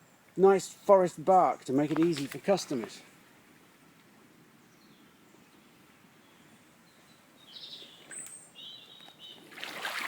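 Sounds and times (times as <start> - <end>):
faint background hiss: 0.0 - 10.0
bird chirping: 4.6 - 9.5.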